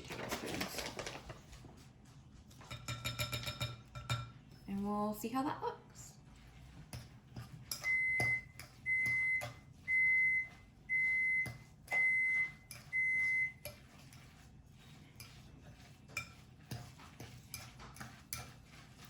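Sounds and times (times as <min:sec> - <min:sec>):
appliance beeping: 0:07.8 - 0:13.6.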